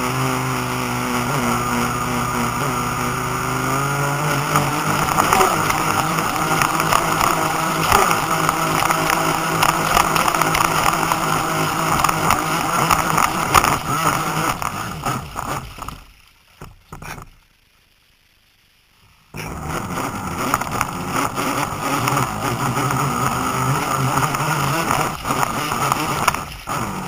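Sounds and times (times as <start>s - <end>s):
model boat motor humming: 0.0s - 16.1s, 19.4s - 27.0s
rushing water: 0.7s - 16.8s.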